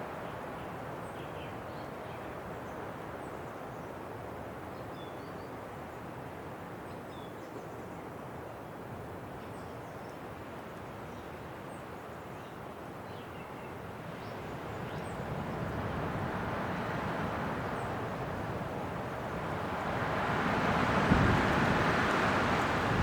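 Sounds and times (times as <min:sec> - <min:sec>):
wind blowing: 0:14.4 - 0:23.0
wind gust: 0:15.0 - 0:23.0.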